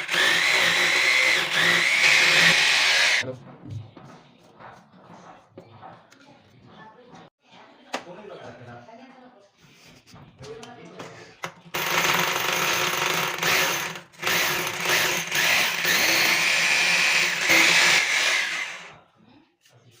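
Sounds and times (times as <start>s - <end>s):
electric power tool running: 0.0s - 3.2s, 11.8s - 18.9s.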